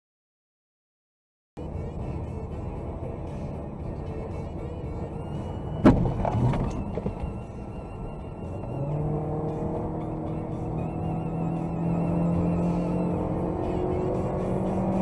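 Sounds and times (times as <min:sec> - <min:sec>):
car and road noise: 0:01.6 - 0:15.0
car collision impact: 0:05.8 - 0:07.3.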